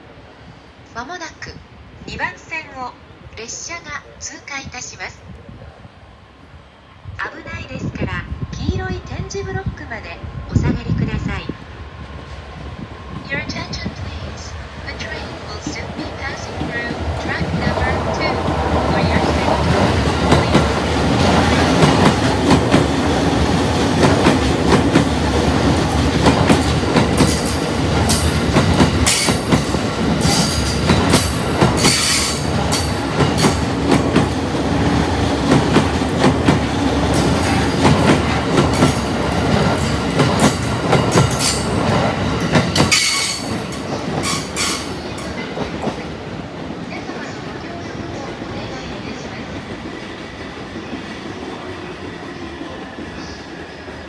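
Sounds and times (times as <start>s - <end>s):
train pulling in: 0.0s - 54.0s
train wheels clacking over rails: 14.9s - 54.0s
train wheel squeals: 42.6s - 45.2s.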